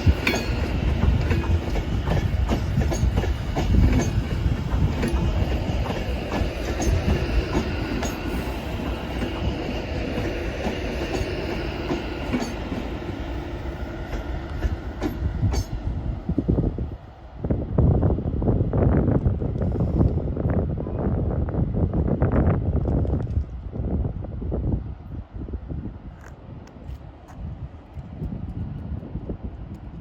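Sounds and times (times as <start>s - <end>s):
train wheels clattering: 0.0s - 15.9s
train rumble: 0.0s - 30.0s.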